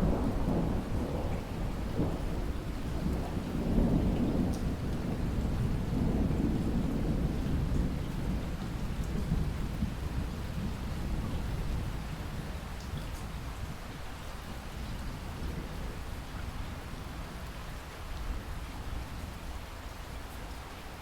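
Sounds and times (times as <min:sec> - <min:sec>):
rolling thunder: 0:00.0 - 0:12.5
steady rain: 0:00.0 - 0:21.0.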